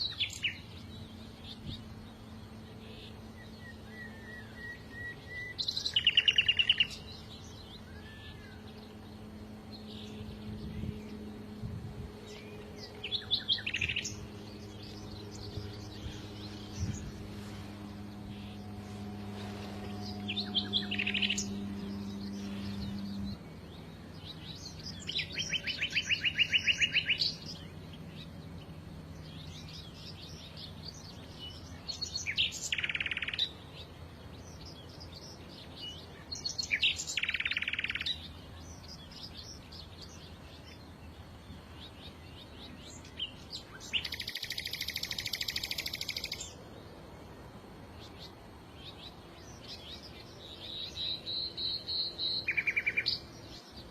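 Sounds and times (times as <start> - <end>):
low hum: 0.0 - 32.4
songbirds singing: 0.0 - 53.9
soft bird chirps: 12.2 - 28.3, 34.6 - 46.6, 48.0 - 53.9.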